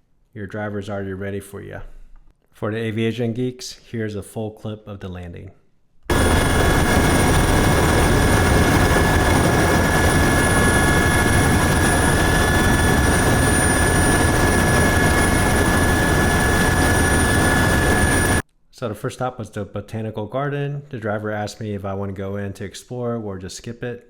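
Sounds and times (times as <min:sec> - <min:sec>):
helicopter turbine and rotors: 0:06.1 - 0:18.4.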